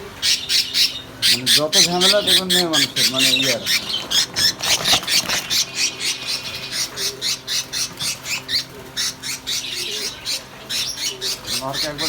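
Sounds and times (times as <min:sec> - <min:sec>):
budgerigars squawking and chattering: 0:00.0 - 0:12.0.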